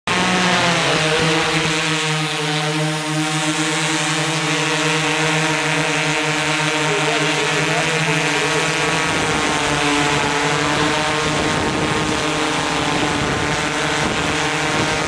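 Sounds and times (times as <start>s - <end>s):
drone motors buzzing: 0.1s - 15.0s.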